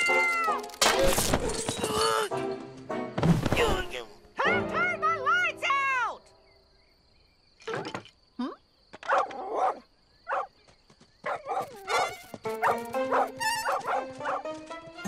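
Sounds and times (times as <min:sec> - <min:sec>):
background music: 0:00.0 - 0:06.4, 0:12.4 - 0:15.0
cartoon dog barking: 0:09.1 - 0:10.5.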